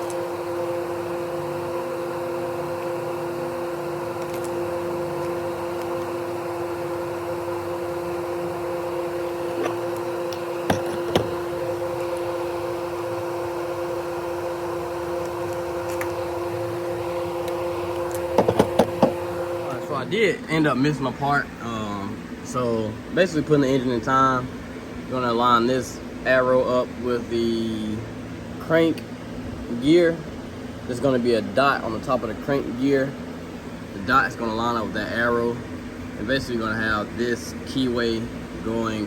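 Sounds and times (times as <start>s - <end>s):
steady two-tone machine hum: 0.0s - 39.0s.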